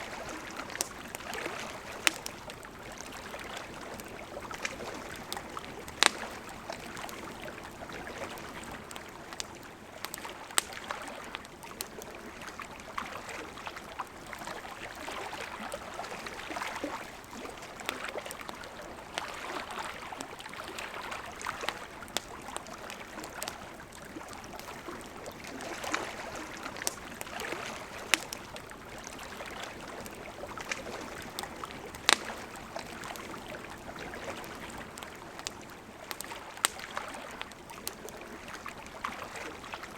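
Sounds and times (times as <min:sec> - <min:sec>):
campfire crackling: 0:00.0 - 0:39.9
flowing river: 0:00.0 - 0:39.9
fire pops: 0:00.1 - 0:07.4, 0:08.8 - 0:10.9, 0:24.4 - 0:33.5, 0:34.5 - 0:36.9.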